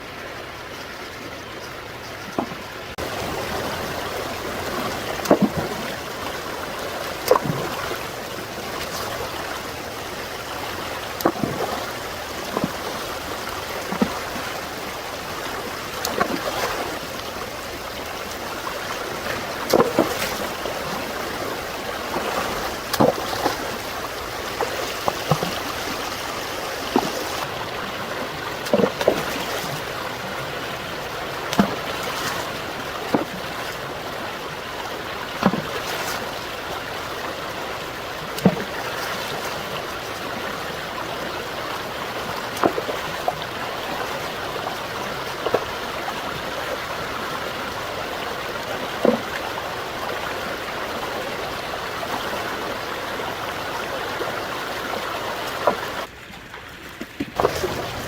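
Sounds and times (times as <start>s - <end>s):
stream water running: 0.0s - 58.0s
sharp splash or knock: 5.2s - 5.8s, 19.6s - 20.5s.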